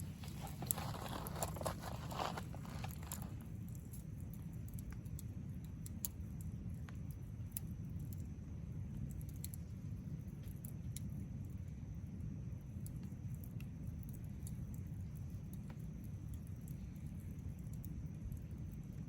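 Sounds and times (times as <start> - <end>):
steady low rumble: 0.0 - 4.0
campfire crackling and popping: 0.0 - 8.1.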